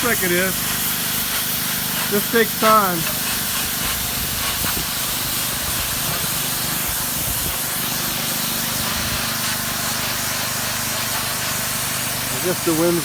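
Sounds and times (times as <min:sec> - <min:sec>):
pressure washer jet hissing: 0:00.0 - 0:13.0.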